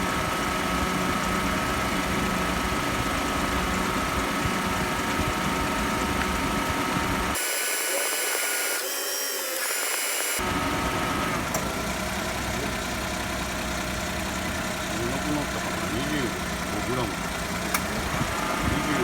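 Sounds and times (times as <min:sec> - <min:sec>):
car engine idling: 0:00.0 - 0:08.8, 0:09.4 - 0:19.0
high whine: 0:05.2 - 0:11.3.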